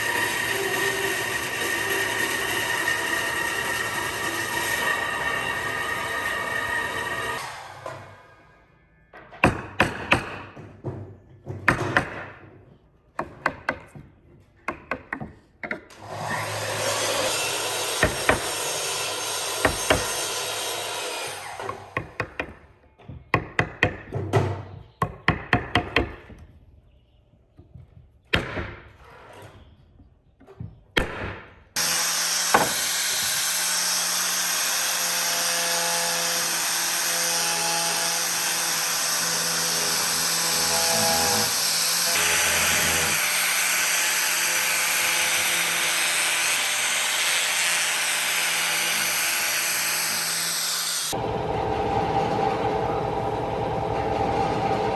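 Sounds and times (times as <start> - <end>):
power tool running: 0.0 - 8.6, 15.9 - 22.2, 31.8 - 54.9.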